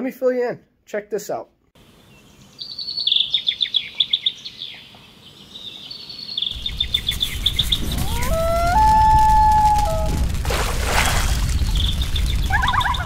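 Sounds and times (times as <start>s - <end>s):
songbird chirping: 1.8s - 8.7s
low rushing noise: 6.6s - 12.5s.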